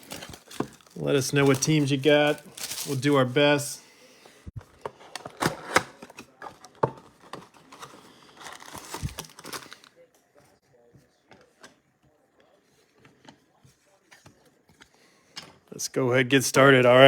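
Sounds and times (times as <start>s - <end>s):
plastic wrap crinkling: 0.0s - 3.7s, 7.2s - 9.9s.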